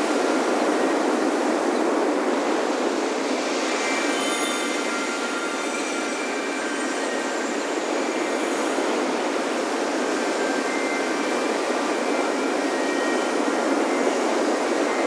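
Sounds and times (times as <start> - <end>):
ocean surf on a beach: 0.0 - 15.0
wind chimes ringing: 3.6 - 15.0.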